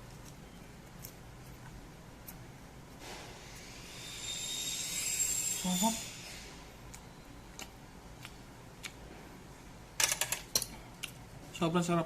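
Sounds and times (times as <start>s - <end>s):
mouth clicks while chewing: 6.9s - 9.0s.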